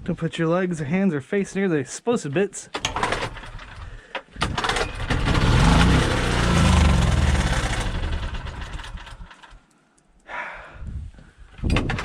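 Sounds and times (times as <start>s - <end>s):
small generator engine running: 4.6s - 9.5s.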